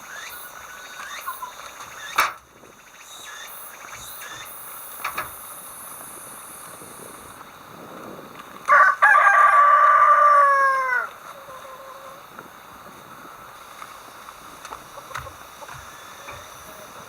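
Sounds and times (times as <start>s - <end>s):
rooster crowing: 8.7s - 12.2s.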